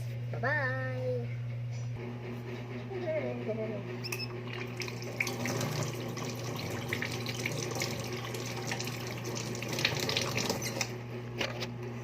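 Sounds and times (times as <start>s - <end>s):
tap water running into sink: 4.4s - 11.0s
hands washing under water: 4.5s - 10.9s.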